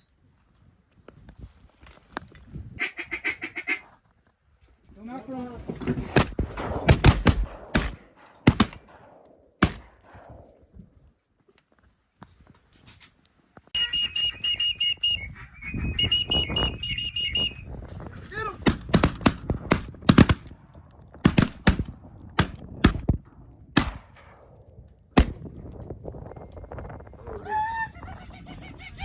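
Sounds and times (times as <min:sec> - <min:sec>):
shotgun blasts: 0:06.1 - 0:10.7, 0:18.6 - 0:23.2, 0:23.8 - 0:24.6, 0:25.2 - 0:25.5
rapid pulsed whistling: 0:13.8 - 0:17.7.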